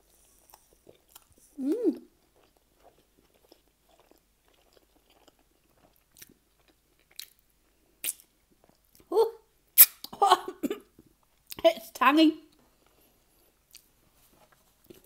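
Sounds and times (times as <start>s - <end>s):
person humming: 1.6s - 2.1s
wet mouth clicks and smacks: 8.0s - 8.3s, 9.8s - 10.2s.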